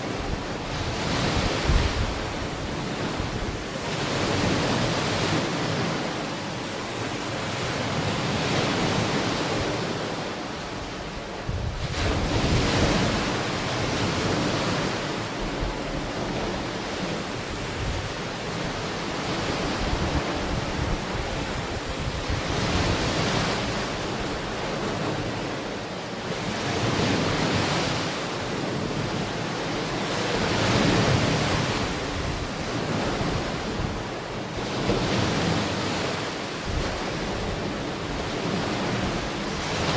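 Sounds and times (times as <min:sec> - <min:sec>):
wind buffeting microphone: 0:00.0 - 0:06.1, 0:10.8 - 0:25.6, 0:30.0 - 0:39.9
ocean waves breaking on beach: 0:00.0 - 0:39.9.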